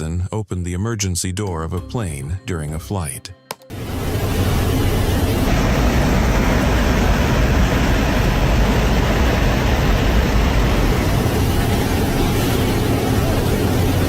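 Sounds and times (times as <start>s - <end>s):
aircraft engine noise: 3.7s - 14.0s
wind rushing: 3.7s - 14.0s.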